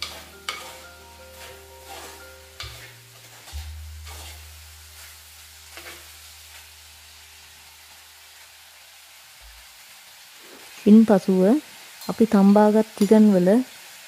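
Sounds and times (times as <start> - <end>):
metal spoon scraping pot: 0.0 - 4.5
food sizzling in clay pot: 0.0 - 14.0.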